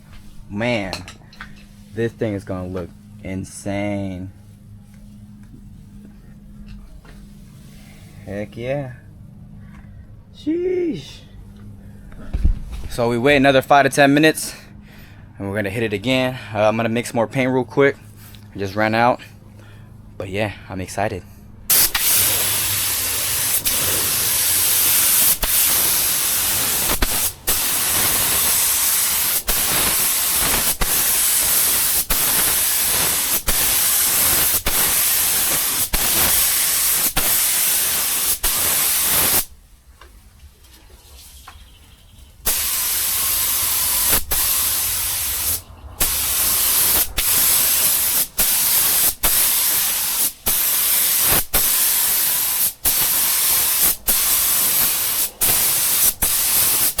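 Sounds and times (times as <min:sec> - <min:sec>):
paint spray gun hissing: 0:21.7 - 0:39.5, 0:42.4 - 0:57.0.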